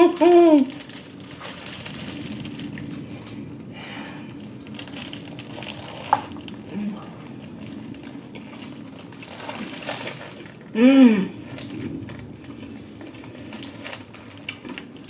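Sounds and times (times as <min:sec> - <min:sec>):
paper wrapper rustling: 0:00.0 - 0:03.4, 0:04.6 - 0:10.7, 0:13.1 - 0:15.0.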